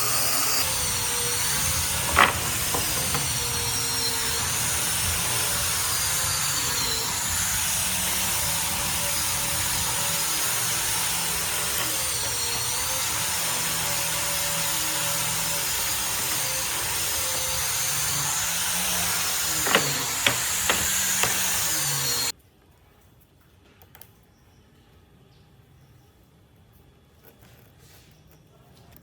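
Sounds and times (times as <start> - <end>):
power tool running on wood: 0.0 - 22.3
sharp knocks: 0.6 - 13.6, 15.4 - 22.3.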